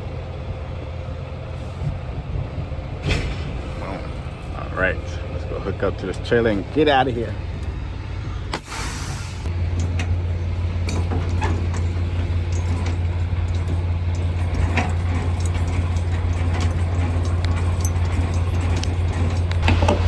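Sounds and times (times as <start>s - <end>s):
truck diesel engine humming: 0.0s - 20.0s
light clicks and knocks: 9.5s - 20.0s.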